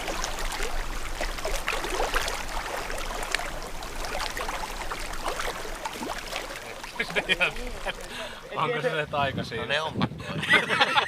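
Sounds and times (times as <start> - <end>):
water splashing around boat: 0.0 - 8.6.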